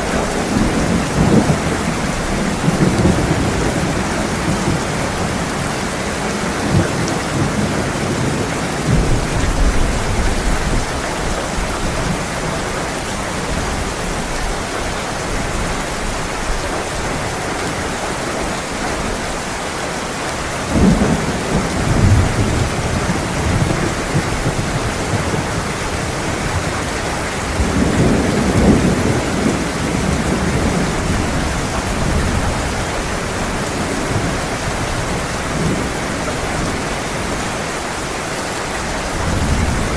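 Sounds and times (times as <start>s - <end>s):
thunder rumbling: 0.0s - 12.4s, 20.6s - 37.7s, 38.7s - 39.9s
heavy rain falling: 0.0s - 39.9s.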